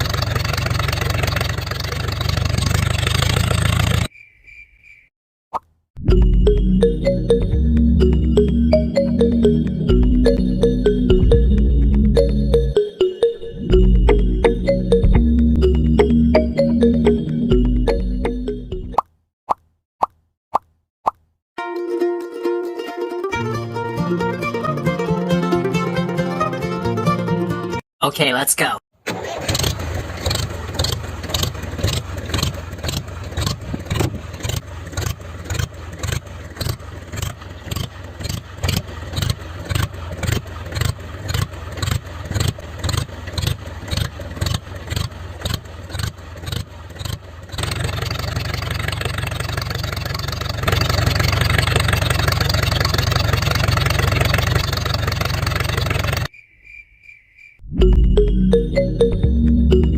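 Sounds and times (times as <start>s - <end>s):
tractor engine chugging: 0.0s - 4.1s, 29.1s - 56.3s.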